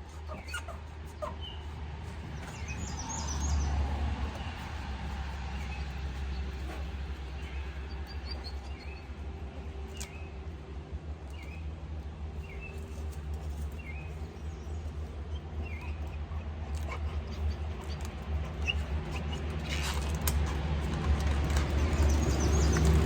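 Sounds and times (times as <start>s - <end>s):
vehicle approaching rumble: 0.0s - 23.0s
small bird chirping: 0.3s - 4.7s.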